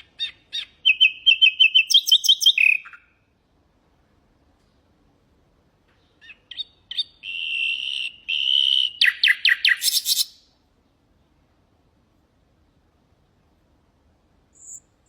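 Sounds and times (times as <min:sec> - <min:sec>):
nightingale singing: 0:00.0 - 0:03.3, 0:06.0 - 0:10.6, 0:14.5 - 0:15.0.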